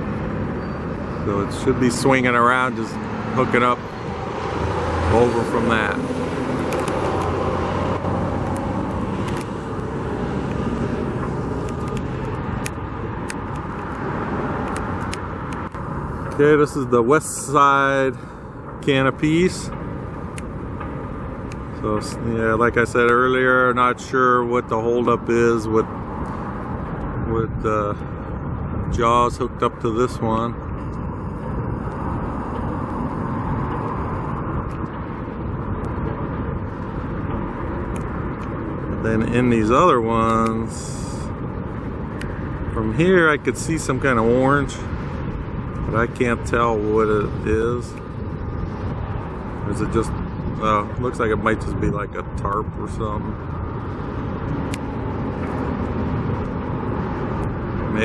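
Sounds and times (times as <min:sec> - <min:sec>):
road traffic: 0:00.0 - 0:58.0
wind rumbling on microphone: 0:00.0 - 0:58.0
sharp clicks: 0:06.6 - 0:07.4, 0:08.4 - 0:09.6, 0:10.4 - 0:14.0, 0:14.6 - 0:16.4, 0:19.7 - 0:21.7.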